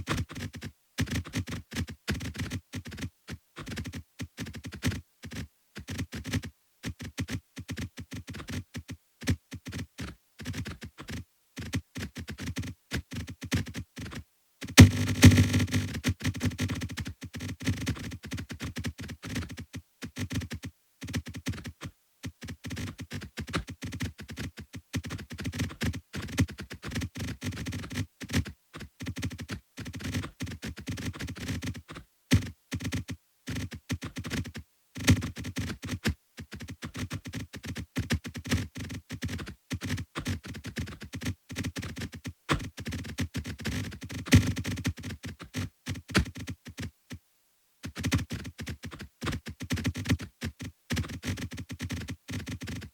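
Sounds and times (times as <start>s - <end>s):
electronic clicks: 14.8s - 16.0s
synthesized blips: 14.8s - 16.0s.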